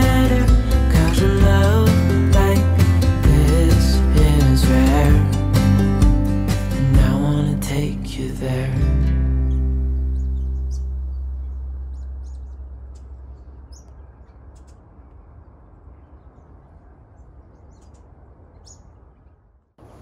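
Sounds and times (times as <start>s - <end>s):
strummed acoustic guitar chord: 0.0s - 11.3s
birds chirping and calling: 9.0s - 20.0s.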